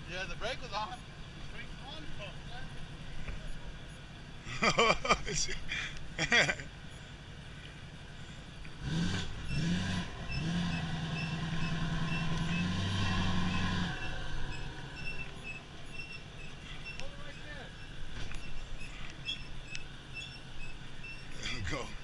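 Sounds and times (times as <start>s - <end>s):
pickup truck engine revving: 8.6s - 22.0s
faint high beep: 9.4s - 21.8s.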